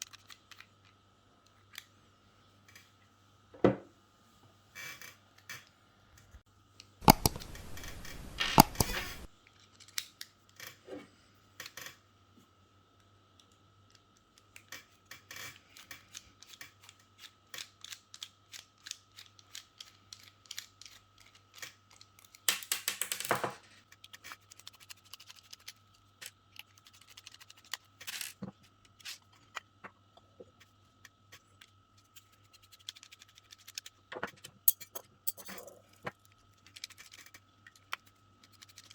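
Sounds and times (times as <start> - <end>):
hair clipper parts clicking: 7.0 - 9.3
hair clipper parts scraping: 7.0 - 9.3.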